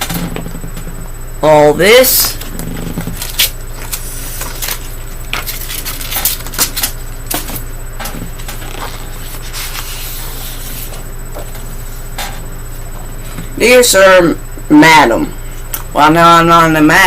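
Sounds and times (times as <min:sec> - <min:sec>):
low electrical hum: 0:00.0 - 0:17.0
paper rustling: 0:03.2 - 0:07.6, 0:08.3 - 0:11.7.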